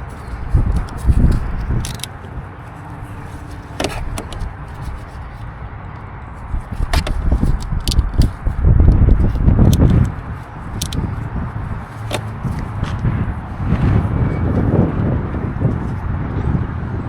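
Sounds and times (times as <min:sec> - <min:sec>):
clicks and knocks of handling: 0:00.0 - 0:02.4, 0:03.1 - 0:05.5, 0:06.6 - 0:13.1.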